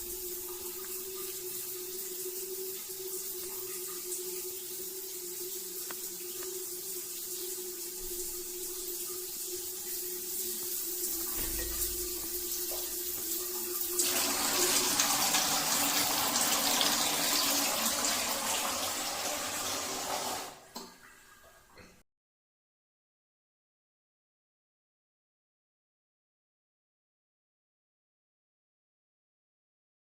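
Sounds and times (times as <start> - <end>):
running water: 0.0 - 22.0.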